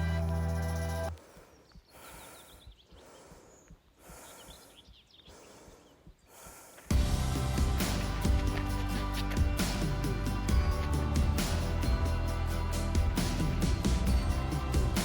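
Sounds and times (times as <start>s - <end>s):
background music: 0.0s - 1.2s, 6.9s - 15.0s
faint birdsong: 0.0s - 6.9s
person breathing hard: 1.2s - 7.6s.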